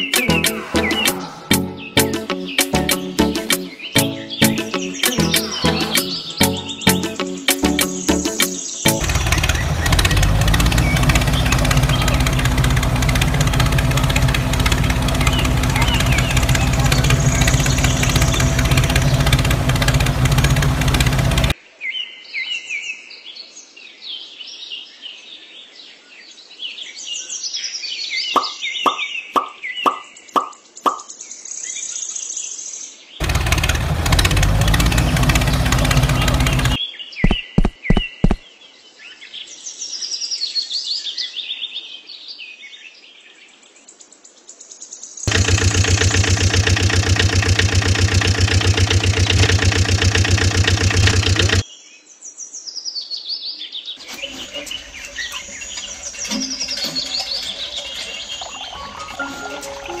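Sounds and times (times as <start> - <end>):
birds chirping: 0.0 - 21.6, 28.3 - 31.4, 33.2 - 38.5, 45.3 - 51.6, 54.0 - 60.0
loud engine running: 8.9 - 21.6, 33.2 - 36.8, 45.3 - 51.6, 54.0 - 58.7
sharp clicks: 33.2 - 38.4, 45.3 - 51.6.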